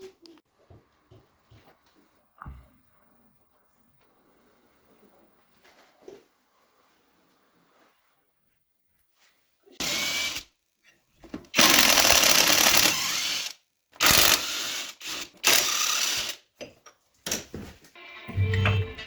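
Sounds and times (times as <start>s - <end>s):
power tool bursts: 11.6s - 16.4s.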